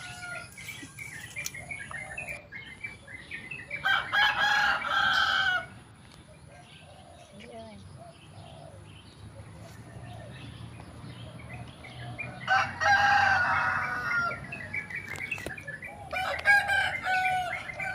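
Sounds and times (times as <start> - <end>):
rooster crowing: 0.0 - 0.7, 3.8 - 5.8, 12.2 - 14.6, 16.1 - 17.9.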